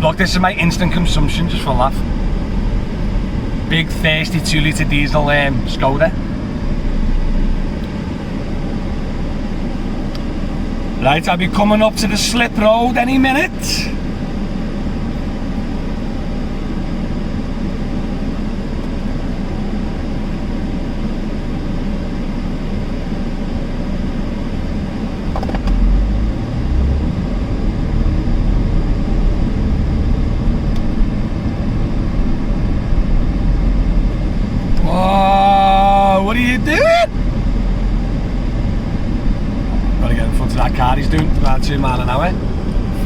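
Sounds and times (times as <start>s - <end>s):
deep low rumble: 0.0s - 10.8s, 25.0s - 43.0s
air conditioning fan blowing: 0.0s - 43.0s
car road and engine noise: 0.0s - 43.0s.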